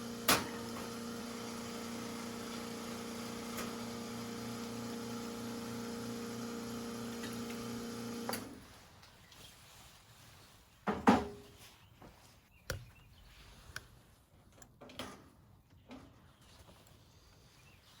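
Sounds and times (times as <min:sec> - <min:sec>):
objects knocking and clunking: 0:10.9 - 0:11.5.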